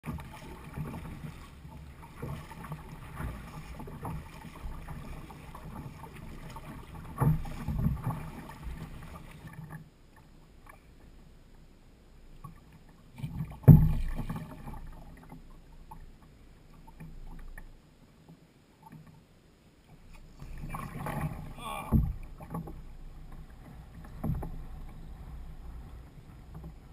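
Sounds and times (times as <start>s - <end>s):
water and hull noise: 0.0s - 26.9s
heavy thumps on kayak: 13.6s - 14.3s, 20.4s - 22.6s.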